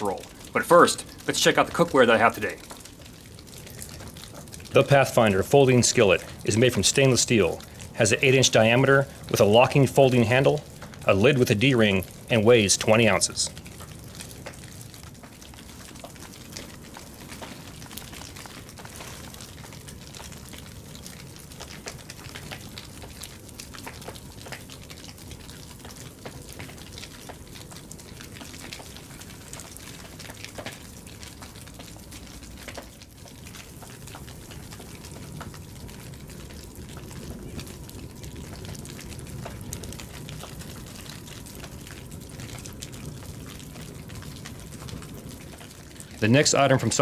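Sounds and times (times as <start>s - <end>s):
faint outdoor background hiss: 0.0s - 47.0s
small crackles and clicks: 0.0s - 47.0s.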